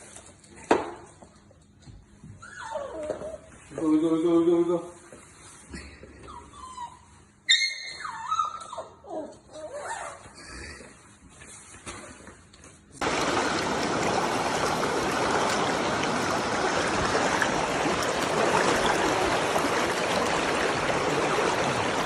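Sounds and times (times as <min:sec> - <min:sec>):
running water: 0:13.0 - 0:22.0.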